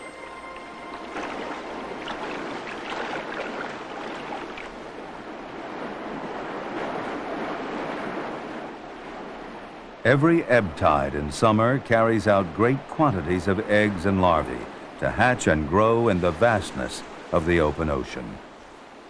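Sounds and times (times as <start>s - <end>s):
surging water: 0.0s - 19.0s
small splashes: 0.2s - 5.2s.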